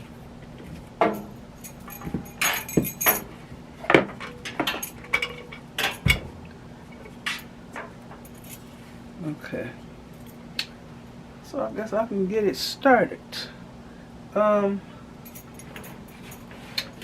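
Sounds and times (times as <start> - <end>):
faint steady hum: 0.0 - 17.0
utensils clinking on counter: 1.0 - 3.3.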